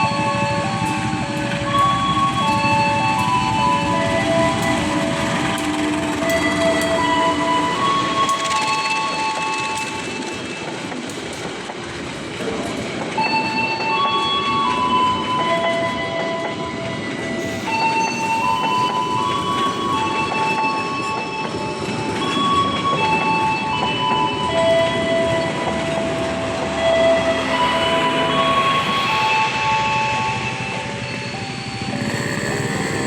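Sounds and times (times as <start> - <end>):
train wheels rumbling on rails: 0.0 - 33.0
high squealing tones: 17.1 - 23.6, 25.2 - 33.0.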